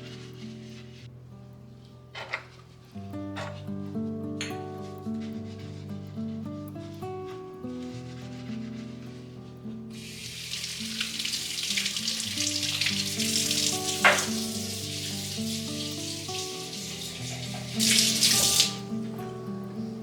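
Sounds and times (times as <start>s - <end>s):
soft background music: 0.0s - 20.0s
food sizzling in frying pan: 10.0s - 18.9s.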